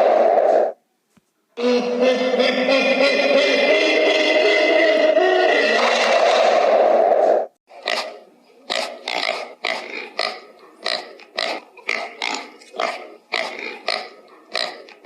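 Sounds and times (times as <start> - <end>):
pig grunting: 7.7 - 15.0.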